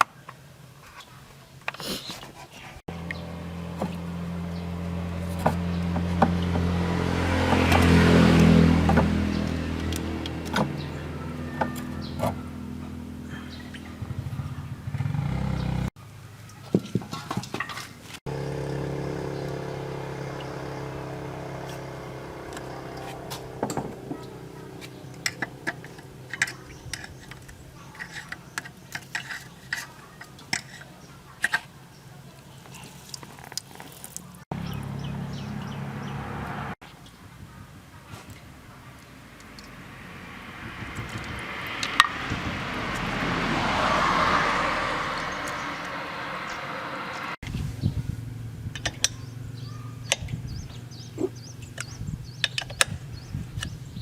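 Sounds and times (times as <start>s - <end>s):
running motor hum: 2.9s - 15.9s, 18.3s - 27.9s
metal tools clinking on engine parts: 22.5s - 31.7s.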